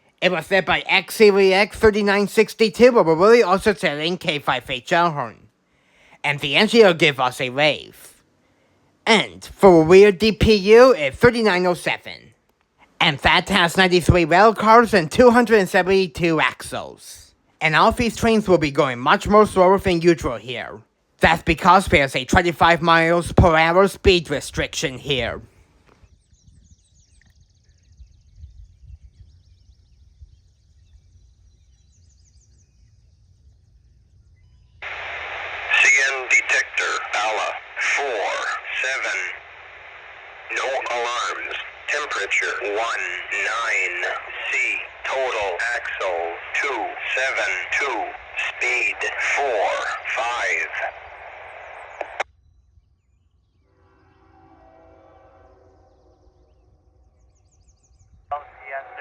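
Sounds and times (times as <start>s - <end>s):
scanner radio hiss: 0.0s - 25.8s, 34.8s - 52.3s, 58.3s - 59.0s
faint high bird chirps: 26.0s - 34.9s, 51.5s - 58.9s
radio click: 34.8s - 52.2s
distant train horn chord: 53.6s - 57.4s.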